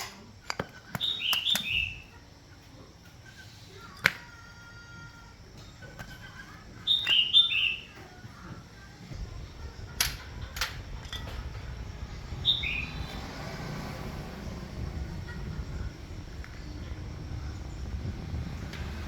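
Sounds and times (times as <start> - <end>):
small bird chirping: 0.4 - 19.0
steady low rumble: 9.0 - 19.0.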